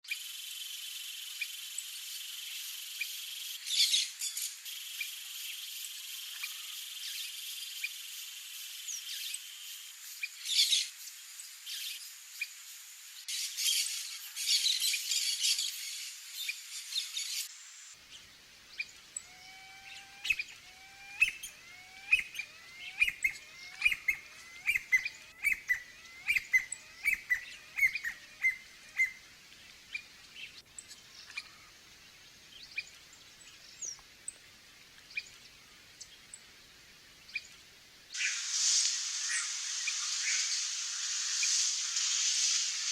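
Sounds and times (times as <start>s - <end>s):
songbird call notes: 13.3s - 34.4s, 37.2s - 42.9s
high insect buzzing: 38.1s - 42.9s.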